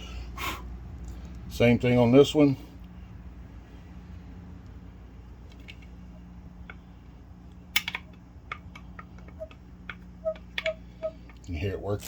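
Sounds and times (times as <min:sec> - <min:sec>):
steady low hum: 0:00.0 - 0:12.0
clicks and clatter of pump parts: 0:07.8 - 0:12.0.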